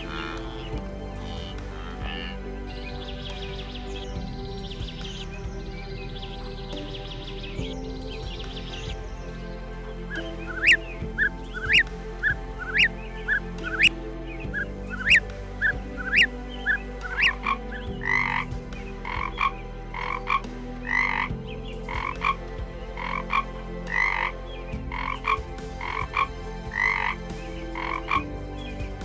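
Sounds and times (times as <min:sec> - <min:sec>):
frog croaking: 0:00.0 - 0:02.5, 0:10.1 - 0:13.9, 0:14.5 - 0:28.2.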